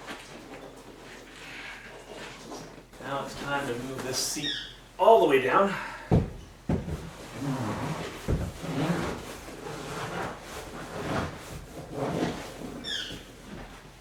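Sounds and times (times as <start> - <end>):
seat knocking: 6.1 - 7.2
seat rubbing and creaking: 6.2 - 14.0.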